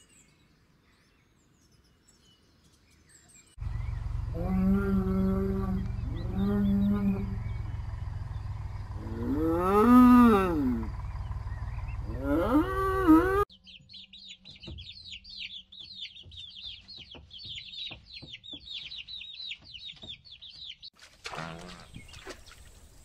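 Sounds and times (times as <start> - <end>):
cow mooing: 4.3 - 7.5, 9.0 - 11.0, 12.0 - 13.4
chicks peeping: 13.5 - 20.9.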